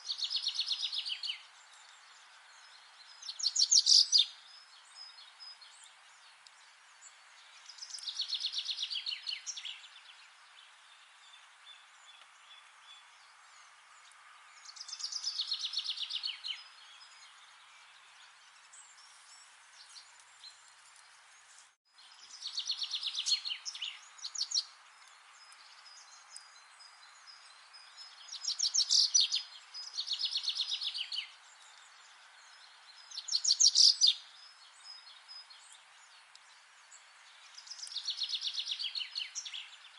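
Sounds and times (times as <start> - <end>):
steady background hiss: 0.0 - 39.9
songbird trilling: 3.3 - 4.3.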